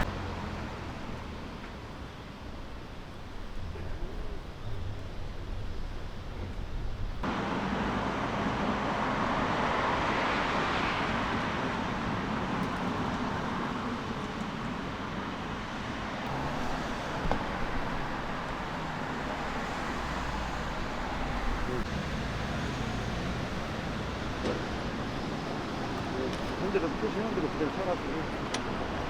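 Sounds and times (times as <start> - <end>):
road traffic rumble: 0.0 - 29.0
vehicle passing: 7.2 - 14.2, 15.6 - 29.0.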